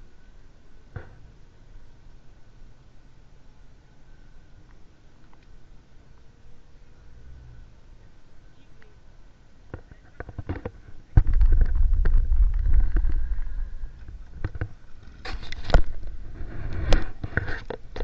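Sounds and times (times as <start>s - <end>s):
microphone handling knocks: 9.7s - 13.4s
wind rumble: 10.1s - 17.6s.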